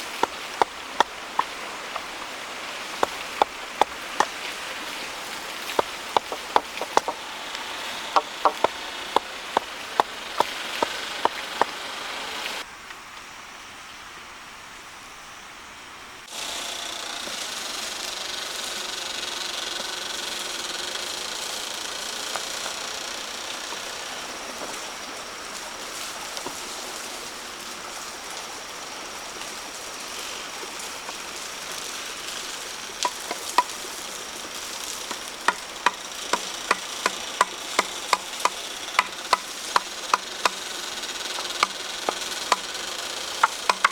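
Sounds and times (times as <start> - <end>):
sharp knocking: 0.0 - 12.6, 43.4 - 43.9
steady rustling hiss: 0.0 - 43.9.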